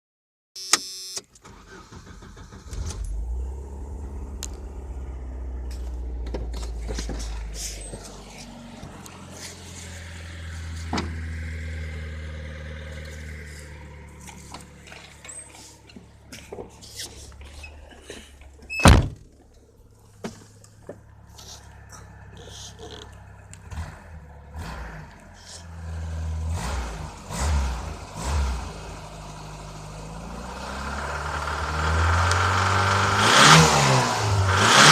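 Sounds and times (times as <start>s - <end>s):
pickup engine knocking and running: 3.2s - 21.3s.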